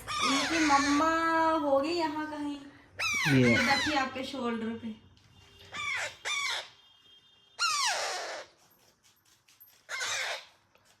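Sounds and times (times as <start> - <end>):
parrot squawking: 0.0 - 1.5, 3.0 - 4.2, 5.7 - 6.8, 7.6 - 8.6, 9.9 - 10.6.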